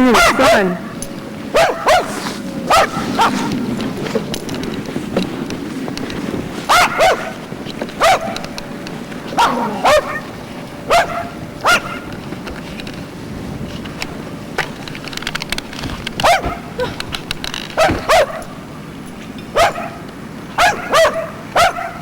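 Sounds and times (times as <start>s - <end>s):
steady background noise: 0.0s - 22.0s
dog barking: 0.1s - 3.6s, 6.7s - 7.4s, 8.0s - 8.5s, 9.3s - 12.1s, 16.2s - 16.9s, 17.8s - 18.6s, 19.5s - 22.0s.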